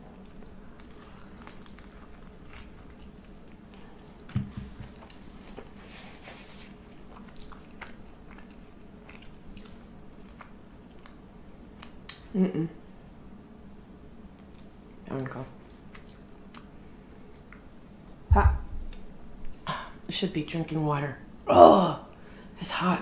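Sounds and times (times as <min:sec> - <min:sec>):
person chewing crunchy food: 0:00.1 - 0:04.3, 0:06.8 - 0:11.2
soft thump: 0:04.3 - 0:04.9, 0:18.3 - 0:18.8.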